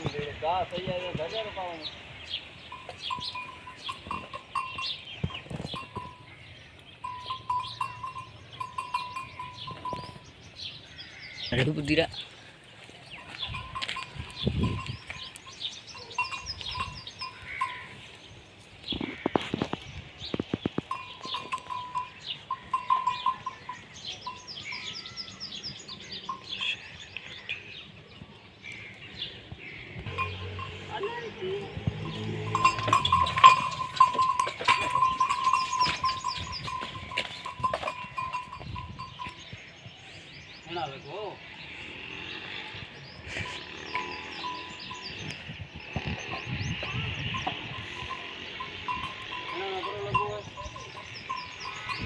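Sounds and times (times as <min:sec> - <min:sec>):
farm animals calling: 0:00.0 - 0:52.0
small birds chirping: 0:00.0 - 0:52.0
sharp clinks and knocks: 0:30.1 - 0:39.4.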